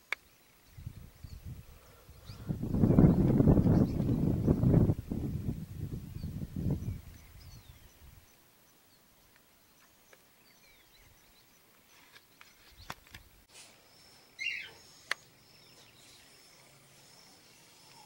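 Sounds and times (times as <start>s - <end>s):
faint outdoor ambience: 0.0s - 18.0s
faint bird chirps: 6.1s - 18.0s.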